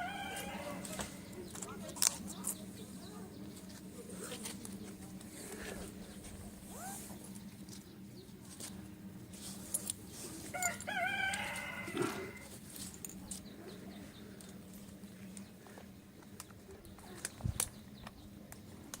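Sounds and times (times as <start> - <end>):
rooster crowing: 0.0 - 1.4, 10.5 - 12.5
steady low hum: 0.0 - 19.0.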